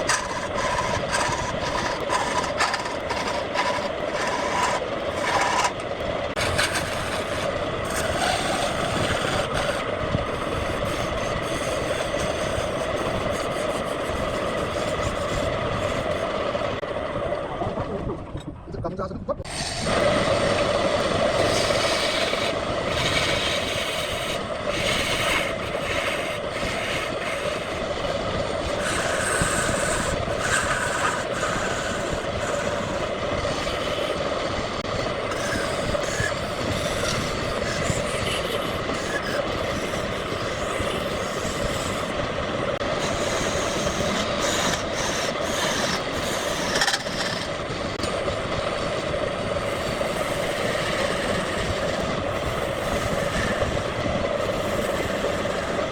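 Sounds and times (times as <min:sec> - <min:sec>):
wood lathe humming: 0:00.0 - 0:16.8, 0:19.4 - 0:55.9
hiss: 0:49.6 - 0:55.8.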